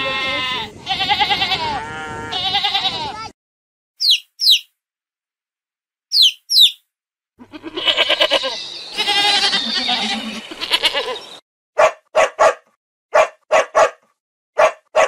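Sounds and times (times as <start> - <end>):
goats bleating: 0.0 - 3.3, 7.4 - 11.3.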